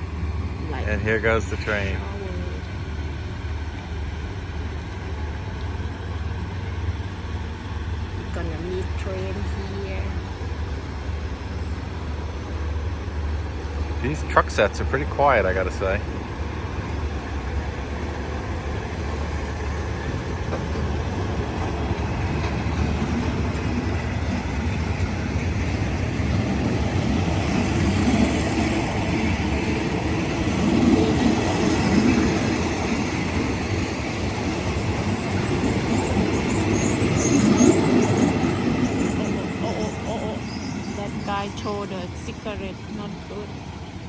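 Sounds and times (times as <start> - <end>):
train carriages rumbling on rails: 0.0 - 44.0
high squeal: 30.8 - 42.4.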